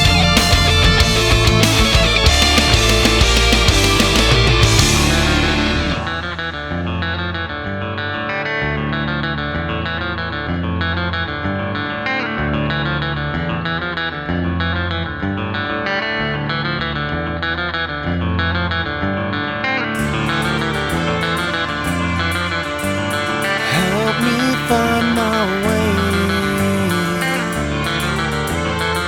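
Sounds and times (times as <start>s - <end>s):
bass notes: 0.0s - 8.0s, 20.0s - 29.0s
picked electric guitar notes: 0.0s - 29.0s.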